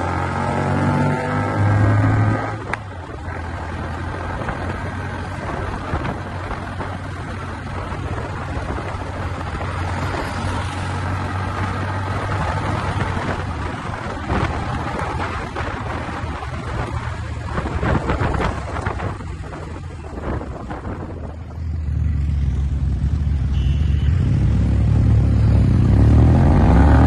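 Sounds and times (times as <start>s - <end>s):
motorcycle engine drone: 0.0s - 27.0s
wind rush on microphone: 1.6s - 21.9s.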